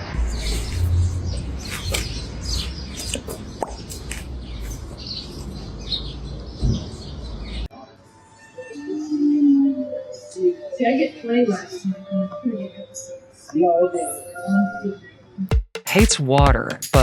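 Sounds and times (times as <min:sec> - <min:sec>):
steady low rumble: 0:00.0 - 0:05.0.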